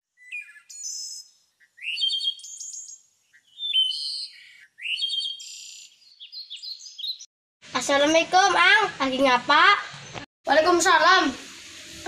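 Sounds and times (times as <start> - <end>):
songbird chirping: 0.1 - 7.3.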